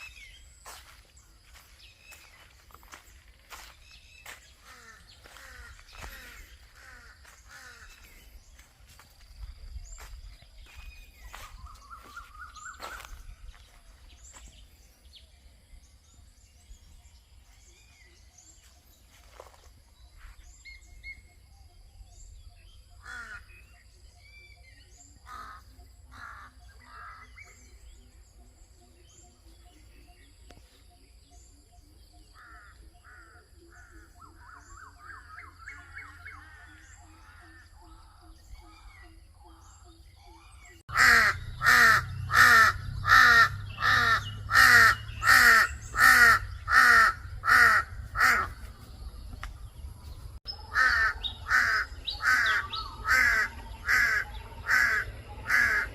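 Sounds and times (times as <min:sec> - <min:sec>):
birds chirping faintly: 0:00.0 - 0:55.9
crow cawing: 0:04.2 - 0:08.3, 0:23.0 - 0:23.6, 0:25.3 - 0:27.4, 0:40.9 - 0:48.6, 0:50.7 - 0:55.9.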